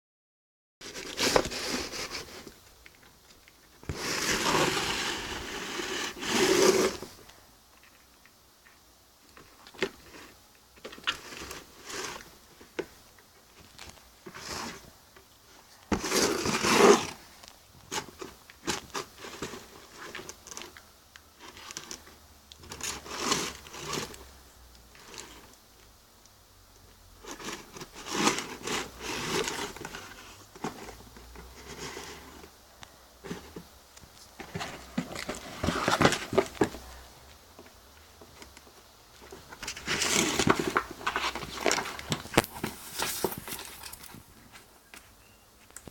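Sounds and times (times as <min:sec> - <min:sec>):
cat scratching at a box: 0:03.9 - 0:07.1.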